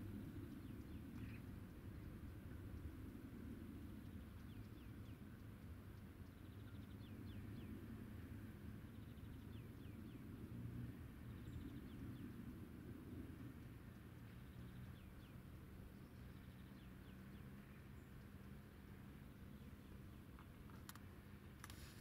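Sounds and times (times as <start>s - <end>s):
small bird singing: 0.0s - 3.0s, 3.7s - 7.9s, 8.8s - 10.4s, 11.2s - 12.5s, 13.6s - 20.4s
low steady rumble: 0.0s - 22.0s.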